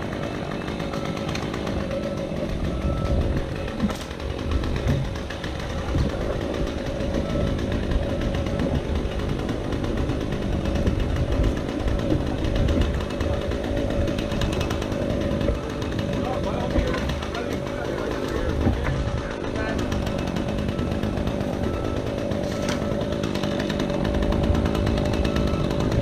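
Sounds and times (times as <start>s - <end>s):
chainsaw engine running: 0.0s - 26.0s
wind rumble on microphone: 4.5s - 9.4s.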